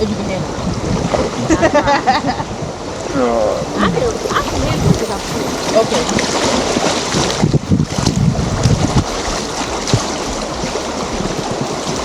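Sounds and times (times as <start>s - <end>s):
wind buffeting microphone: 0.0s - 12.0s
river rapids rushing: 3.3s - 12.0s.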